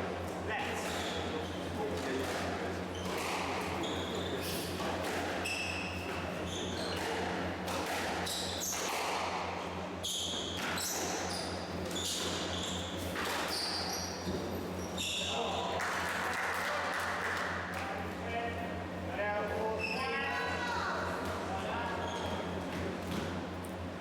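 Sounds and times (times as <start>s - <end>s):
low electrical hum: 0.0s - 24.0s
shoes squeaking on court floor: 0.3s - 9.1s, 10.0s - 15.6s, 19.7s - 20.2s, 21.2s - 23.8s
squash ball hitting rackets and walls: 6.9s - 14.4s.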